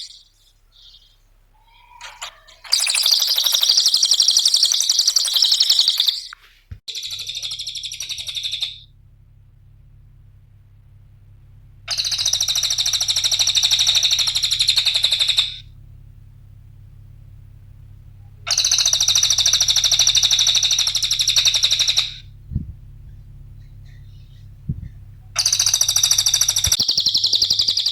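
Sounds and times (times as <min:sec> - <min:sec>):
songbird chattering trills: 0:00.0 - 0:08.8, 0:11.9 - 0:15.6, 0:18.5 - 0:22.2, 0:23.0 - 0:27.9
faint steady hum: 0:00.0 - 0:27.9
short low thuds: 0:22.4 - 0:23.4, 0:24.4 - 0:25.3.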